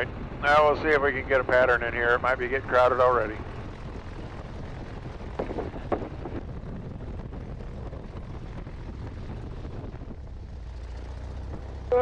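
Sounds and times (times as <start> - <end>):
biplane engine running: 0.0 - 12.0
wind noise on microphone: 3.3 - 12.0.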